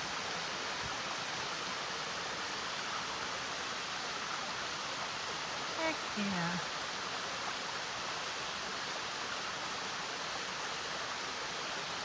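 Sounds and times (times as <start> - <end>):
small waterfall rushing: 0.0 - 12.0.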